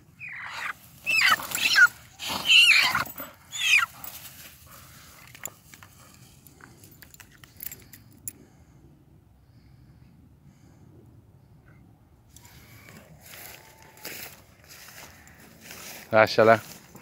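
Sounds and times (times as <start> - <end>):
bird squawking loudly: 0.2 - 3.9.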